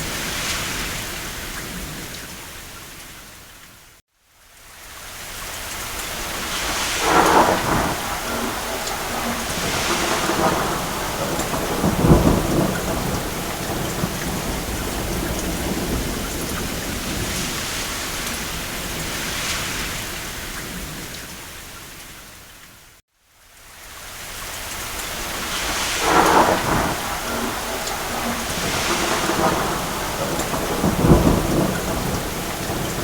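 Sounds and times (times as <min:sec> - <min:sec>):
steady rain: 0:00.0 - 0:33.0
thunder rumble: 0:06.0 - 0:21.4, 0:25.1 - 0:33.0.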